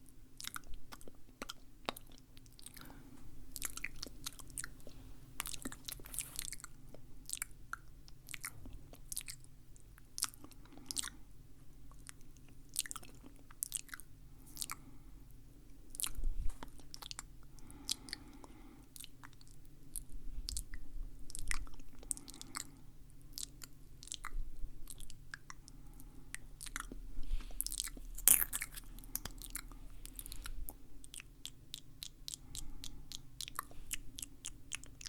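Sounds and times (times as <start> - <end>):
faint steady hum: 0.0 - 35.0
wet mouth clicks and smacks: 27.6 - 35.0.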